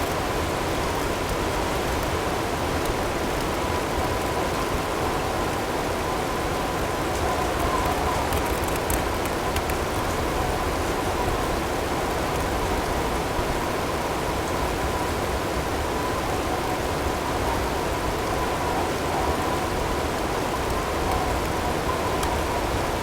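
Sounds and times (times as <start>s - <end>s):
hail pattering: 7.1s - 10.4s.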